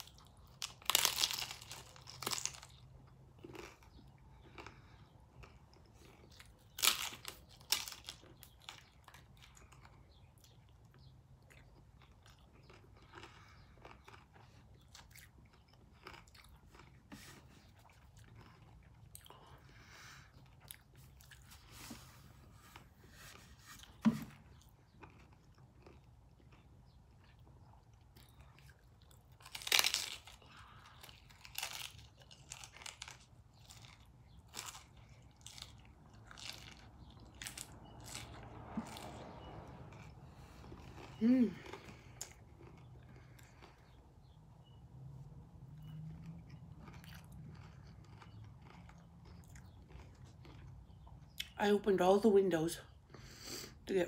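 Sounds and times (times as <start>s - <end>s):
crisp shell crunching: 0.0s - 4.8s, 29.4s - 44.0s
quiet chewing: 1.8s - 51.6s.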